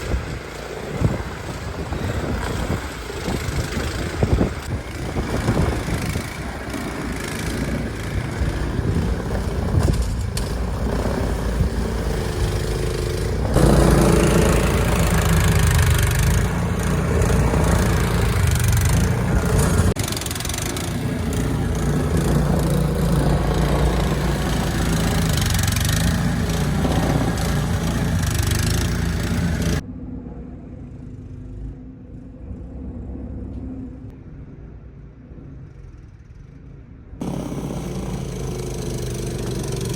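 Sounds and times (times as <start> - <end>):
engine running: 0.0 - 34.2, 35.3 - 39.9
loud rushing noise: 4.2 - 29.8.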